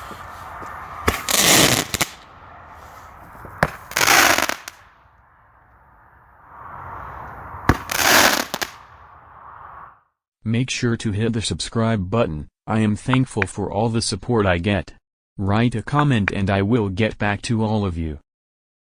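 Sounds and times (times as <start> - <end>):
firework hiss: 0.0 - 4.8, 6.7 - 9.0
firework crackle: 0.0 - 4.9, 7.1 - 9.0
firework pops: 0.6 - 2.2, 3.4 - 4.8, 7.7 - 8.8.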